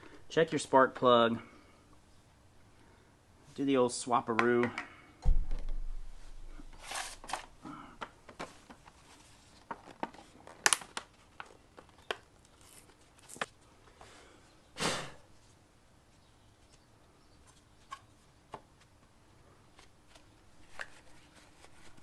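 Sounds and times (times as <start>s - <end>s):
rustling: 5.3s - 7.6s, 15.4s - 22.0s.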